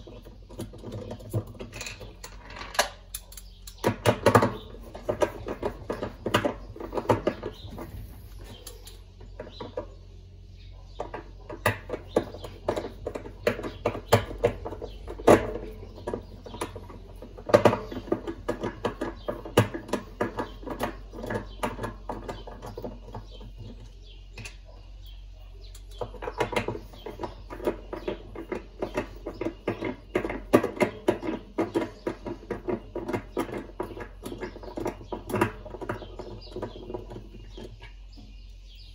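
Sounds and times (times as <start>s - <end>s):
tools and parts clinking: 0.0s - 9.9s.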